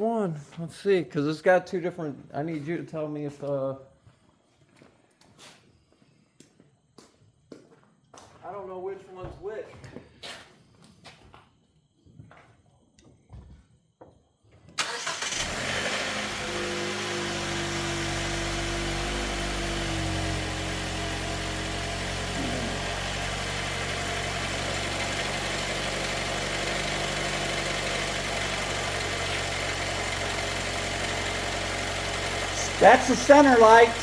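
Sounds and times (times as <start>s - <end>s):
car engine starting and idling: 14.8s - 34.0s.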